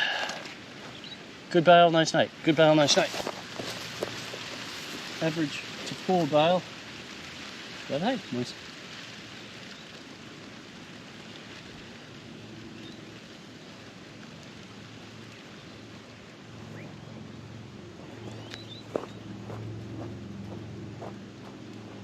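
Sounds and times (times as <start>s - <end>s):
distant engine hum: 0.0s - 22.0s
outdoor background hiss: 0.0s - 22.0s.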